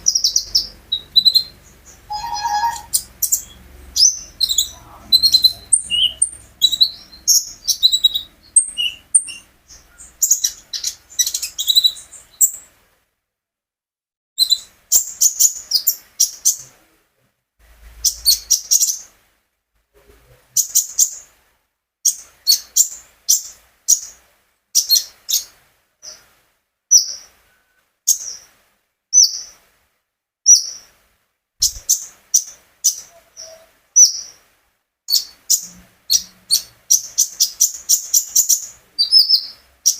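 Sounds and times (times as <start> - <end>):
songbird chips and twitters: 0.0 - 9.4.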